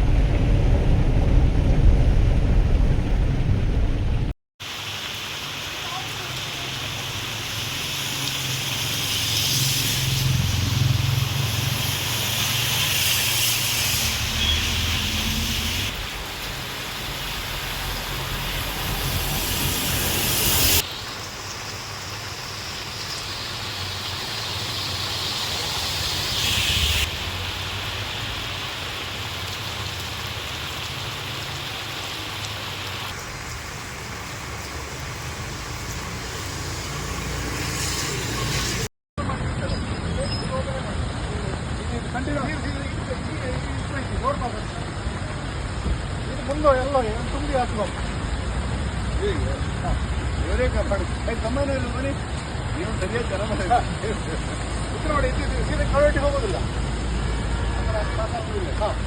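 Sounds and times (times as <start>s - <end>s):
low engine hum: 0.0s - 4.4s
heavy rain and running water: 0.0s - 59.0s.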